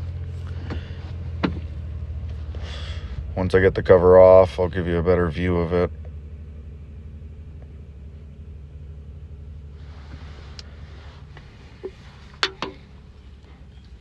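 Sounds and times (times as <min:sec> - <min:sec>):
steady low hum: 0:00.0 - 0:14.0
tools and fasteners clinking: 0:11.8 - 0:12.9.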